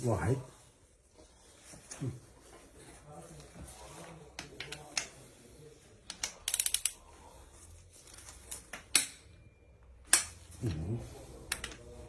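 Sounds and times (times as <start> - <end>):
hand ratchet clicking: 6.1 - 7.0.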